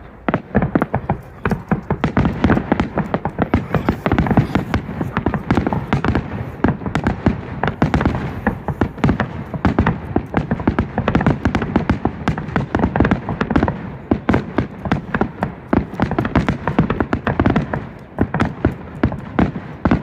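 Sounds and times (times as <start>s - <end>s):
fireworks bursting and crackling: 0.0s - 20.0s.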